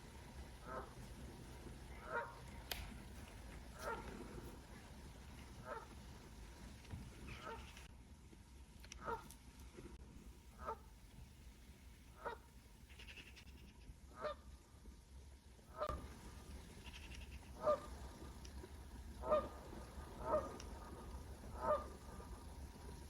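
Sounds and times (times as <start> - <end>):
large bird calling: 12.2 - 13.7, 16.7 - 17.9.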